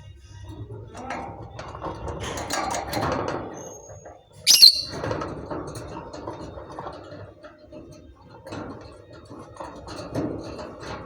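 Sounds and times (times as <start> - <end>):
bird chatter: 4.5 - 5.0
lovebird shrill chirp: 4.5 - 5.0.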